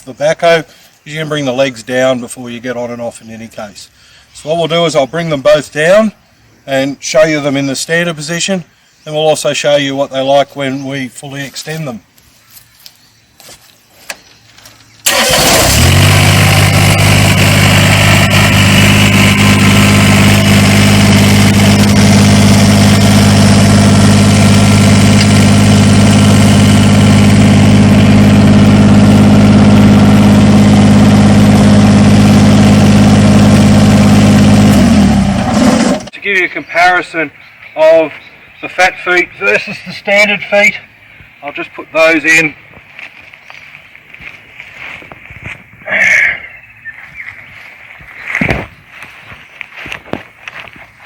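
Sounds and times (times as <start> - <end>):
diesel tractor engine running: 15.0 - 36.1.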